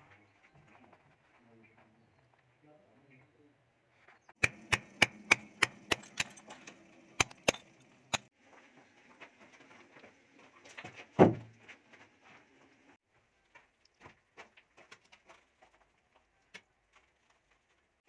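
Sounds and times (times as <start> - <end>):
sharp knocks: 4.4 - 6.6, 7.2 - 8.3.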